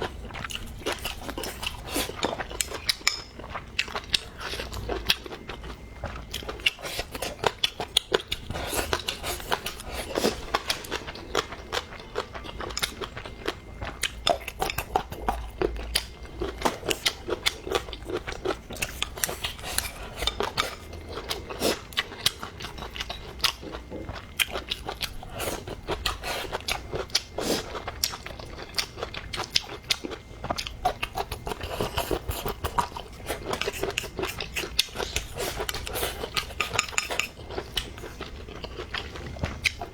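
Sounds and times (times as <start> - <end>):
chewing and crunching food: 0.0 - 39.9.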